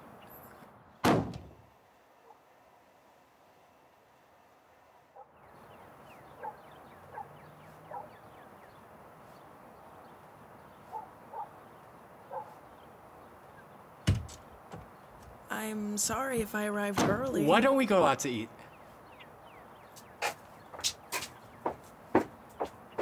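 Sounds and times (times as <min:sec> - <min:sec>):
front door banging: 0:01.0 - 0:01.6, 0:14.0 - 0:15.0
bird chirping: 0:05.4 - 0:16.6, 0:17.2 - 0:23.0.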